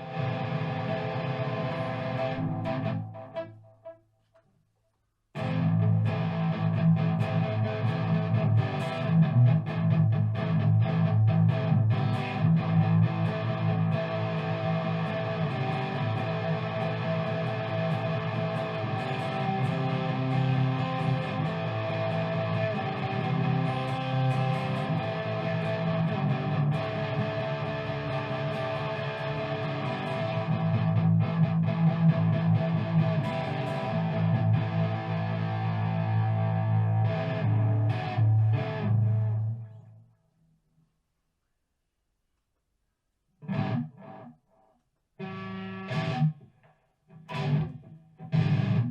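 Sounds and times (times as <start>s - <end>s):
rock track with electric guitar: 0.0s - 3.5s, 5.4s - 39.6s, 43.4s - 44.3s, 45.2s - 46.5s, 47.1s - 48.9s.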